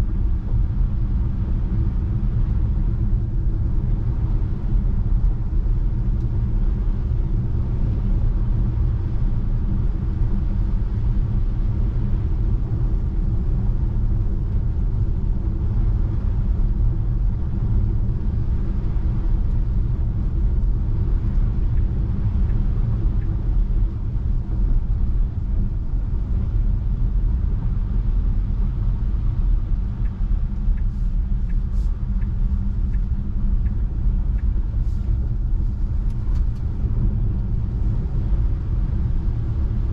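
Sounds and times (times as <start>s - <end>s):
tyre noise on snowy road: 14.7s - 39.9s.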